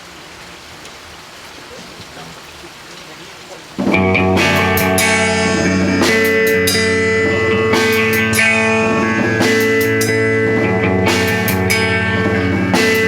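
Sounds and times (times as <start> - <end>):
band playing a song: 3.8 - 13.0
strummed guitar chords: 3.8 - 13.0.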